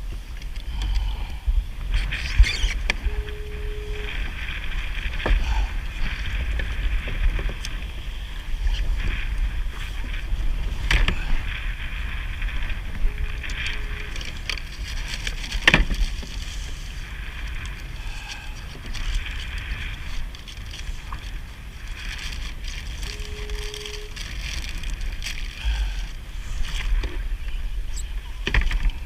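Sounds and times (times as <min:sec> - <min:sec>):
wind rumbling on microphone: 0:00.0 - 0:29.0
water splashing around kayak: 0:01.6 - 0:29.0
short steady tone: 0:03.0 - 0:04.2, 0:23.1 - 0:24.2.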